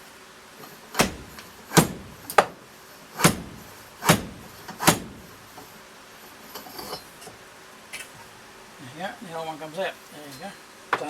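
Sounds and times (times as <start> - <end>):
sharp knocks of seal driver: 0.9 - 2.6, 3.2 - 5.4.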